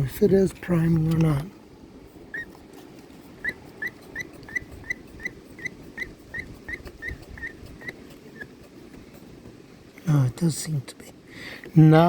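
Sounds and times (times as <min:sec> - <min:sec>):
rubber primer bulb squeaking: 0:02.3 - 0:02.5, 0:03.4 - 0:09.3.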